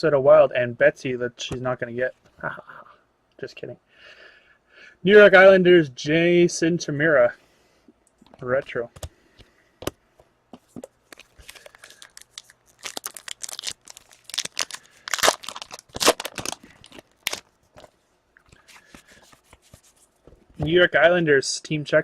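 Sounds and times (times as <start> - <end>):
plastic wrapper crinkling and tearing: 11.0 - 17.9.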